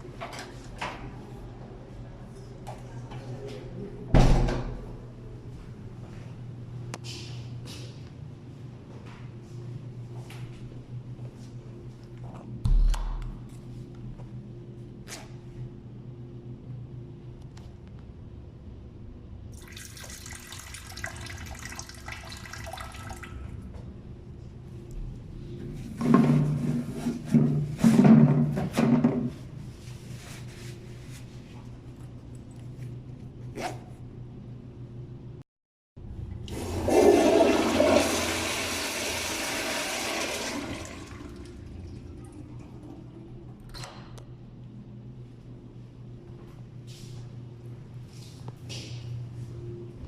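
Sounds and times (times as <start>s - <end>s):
low steady hum: 0.0s - 35.4s, 40.2s - 50.0s
toilet flushing: 19.5s - 23.5s, 36.3s - 43.4s.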